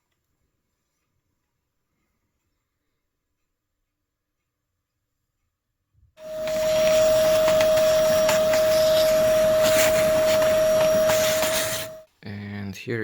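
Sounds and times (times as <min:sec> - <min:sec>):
vacuum cleaner with motor whine: 0:06.2 - 0:12.1.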